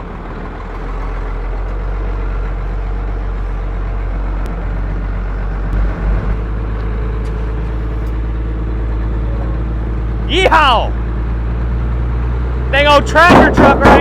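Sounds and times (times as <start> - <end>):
truck engine running: 0.0 - 14.0
low thumps: 13.2 - 14.0.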